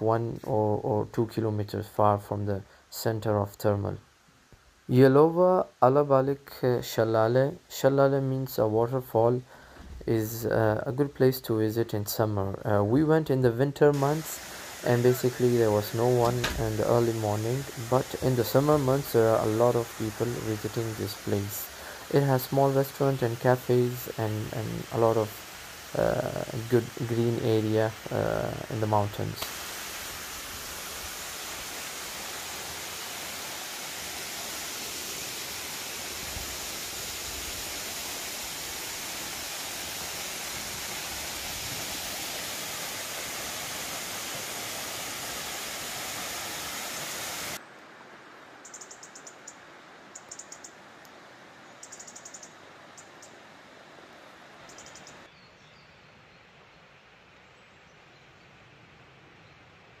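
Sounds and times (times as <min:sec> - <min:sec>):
waterfall rushing: 0:13.9 - 0:47.6
bird chirping: 0:48.6 - 0:49.6, 0:50.2 - 0:50.7, 0:51.8 - 0:53.4, 0:54.7 - 0:56.2.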